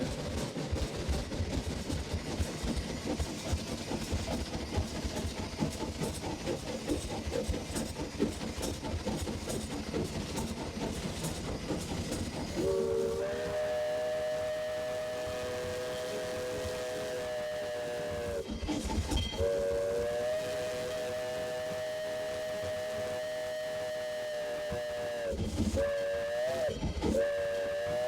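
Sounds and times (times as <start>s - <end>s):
steam locomotive chuffing: 0.0s - 28.0s
steam whistle: 12.6s - 18.5s, 19.4s - 28.0s.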